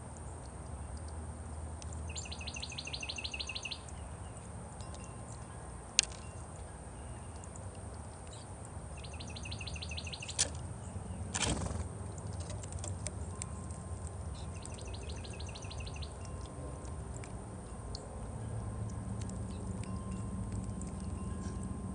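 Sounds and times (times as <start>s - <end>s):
low background hum: 0.0s - 21.9s
songbird rapid high notes: 9.0s - 10.5s.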